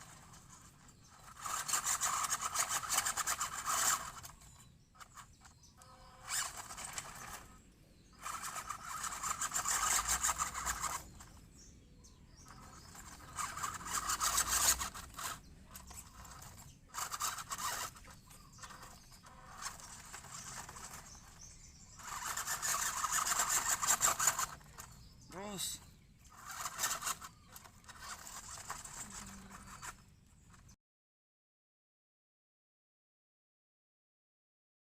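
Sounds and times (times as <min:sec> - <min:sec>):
toy truck motor grinding: 0:00.0 - 0:30.8.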